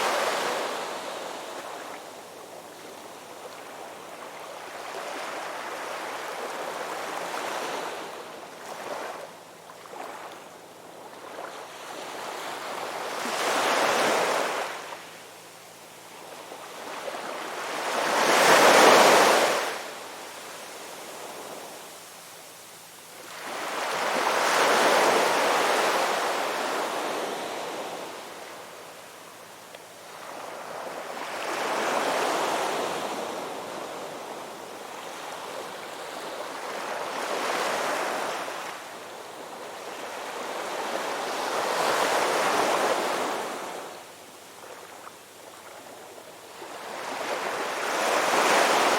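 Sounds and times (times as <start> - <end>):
ocean waves breaking on shore: 16.7 - 19.9, 44.6 - 48.9.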